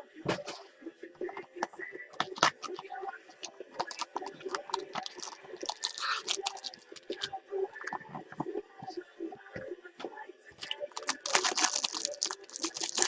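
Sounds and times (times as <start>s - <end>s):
packaging rustle: 3.8s - 7.3s, 11.0s - 13.0s.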